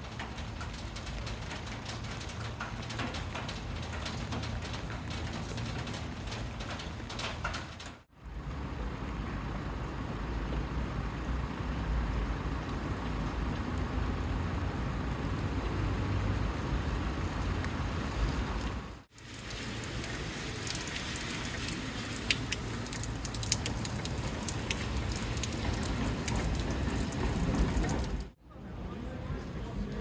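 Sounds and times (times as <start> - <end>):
heavy rain pouring: 0.0 - 8.1, 12.3 - 28.4
sharp raindrop impacts: 0.0 - 8.1, 15.1 - 28.4.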